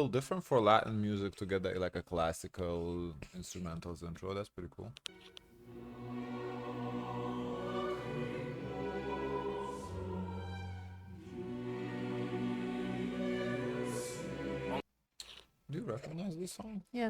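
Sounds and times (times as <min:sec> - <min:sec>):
orchestral strings slow chords: 0:05.1 - 0:14.8.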